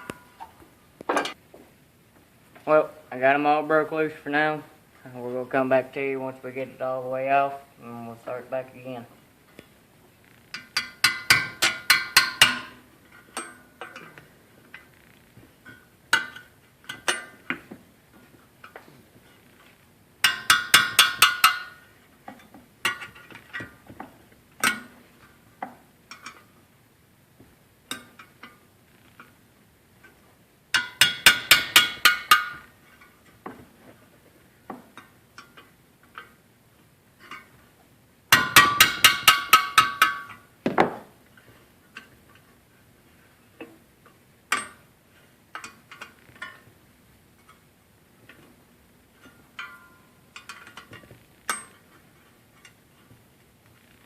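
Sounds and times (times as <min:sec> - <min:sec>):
metal clinks and taps: 0:10.5 - 0:14.9, 0:15.6 - 0:17.8, 0:20.2 - 0:25.0, 0:30.0 - 0:33.6, 0:38.3 - 0:40.8, 0:49.2 - 0:52.0.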